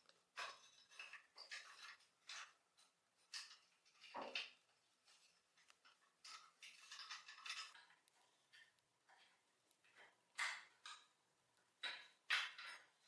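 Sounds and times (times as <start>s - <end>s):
small metal parts clicking: 5.8s - 8.0s.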